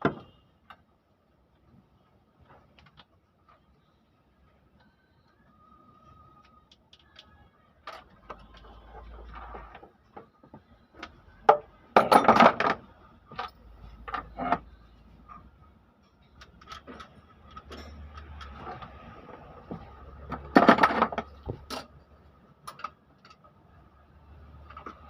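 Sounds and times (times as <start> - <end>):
tools clicking and knocking: 11.0 - 14.7, 16.2 - 19.0, 19.6 - 23.5.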